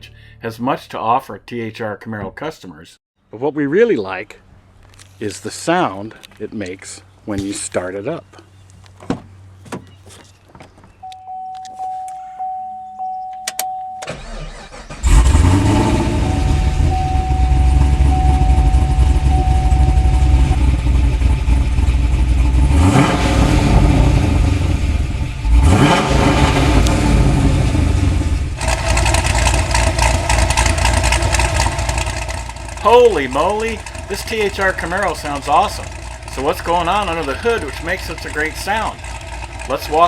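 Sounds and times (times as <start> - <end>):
car engine starting and idling: 12.4 - 40.0
clicks: 13.3 - 13.8
engine revving: 14.1 - 40.0
repeating chime: 16.1 - 20.5.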